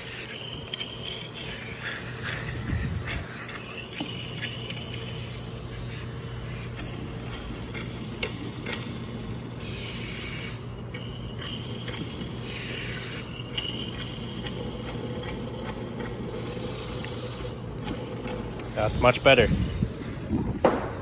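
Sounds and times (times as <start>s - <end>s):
spray hissing onto engine parts: 5.0s - 6.7s.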